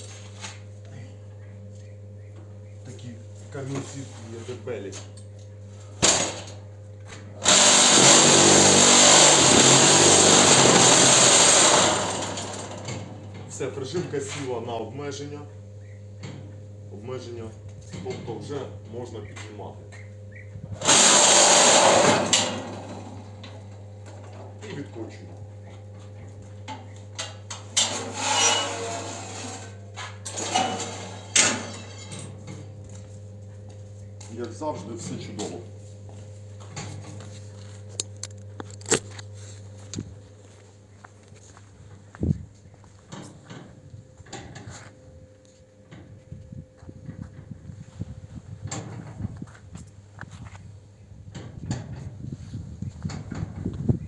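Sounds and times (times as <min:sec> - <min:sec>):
machine vibrator buzzing: 0:04.7 - 0:54.0
machine wheels scraping and rattling: 0:07.4 - 0:14.3, 0:20.8 - 0:24.8, 0:27.5 - 0:32.8.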